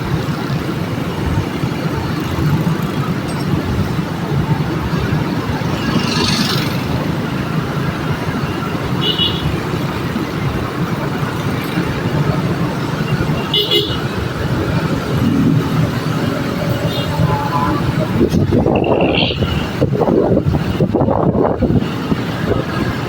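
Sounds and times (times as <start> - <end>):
road traffic rumble: 0.0 - 23.0
high-pitched car horn toots: 16.7 - 19.7.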